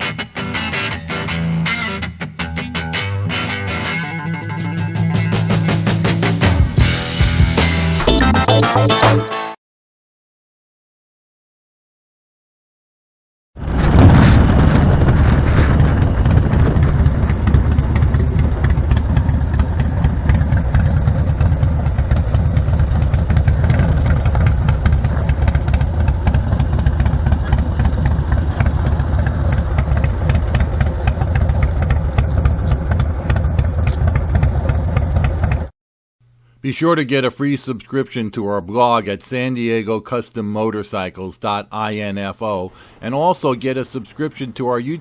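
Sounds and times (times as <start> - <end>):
motorcycle engine running: 3.6 - 8.0, 15.8 - 35.7.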